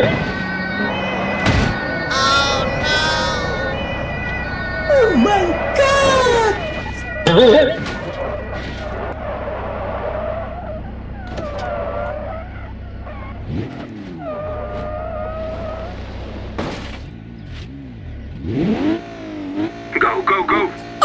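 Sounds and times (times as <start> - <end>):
car engine revving: 0.0 - 21.0
tyres squealing: 2.1 - 3.8.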